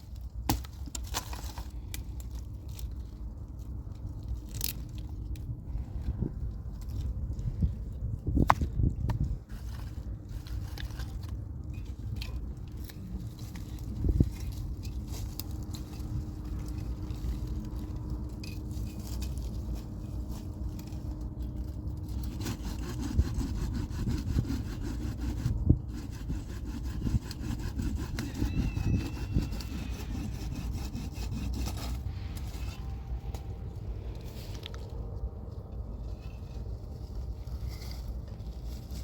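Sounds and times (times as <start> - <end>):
hand saw cutting wood: 22.0 - 32.9.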